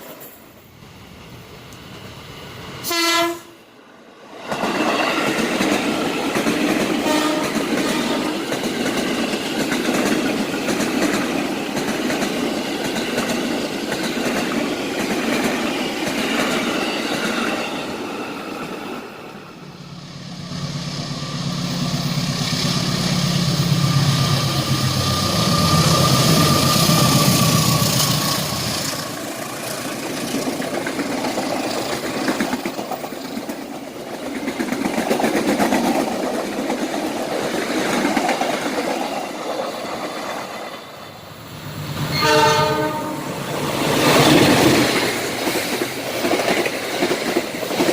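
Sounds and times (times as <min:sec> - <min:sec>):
train wheels clattering: 0:04.5 - 0:18.8.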